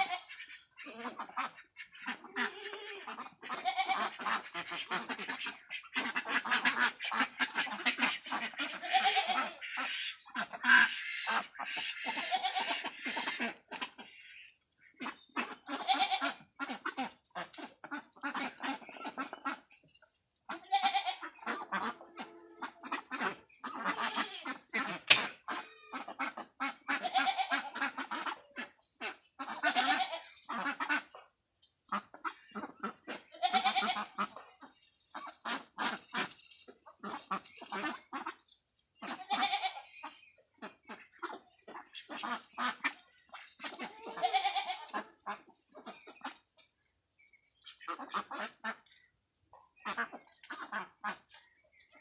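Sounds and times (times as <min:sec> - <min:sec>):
ducks quacking: 0:00.0 - 0:52.0
short clicking sounds: 0:25.1 - 0:25.4.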